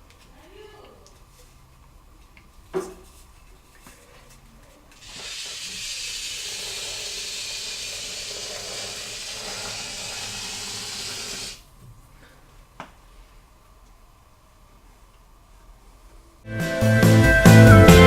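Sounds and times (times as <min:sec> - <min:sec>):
aerosol can spraying hiss: 0:05.0 - 0:11.6.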